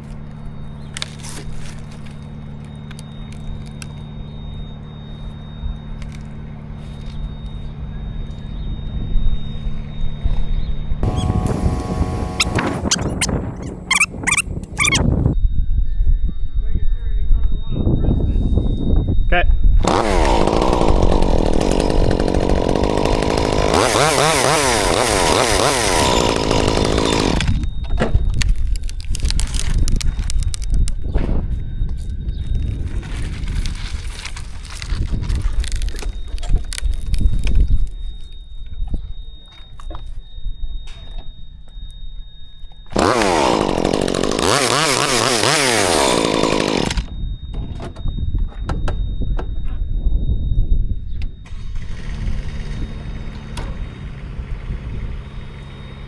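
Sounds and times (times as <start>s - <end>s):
chainsaw revving: 11.0s - 15.4s, 19.8s - 27.7s, 42.9s - 47.1s, 51.5s - 53.4s.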